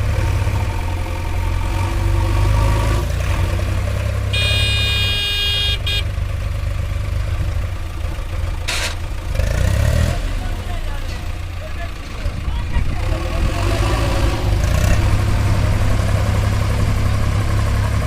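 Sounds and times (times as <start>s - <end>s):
diesel engine of farm machinery: 0.0s - 18.0s
high-pitched vehicle horn: 4.3s - 6.1s.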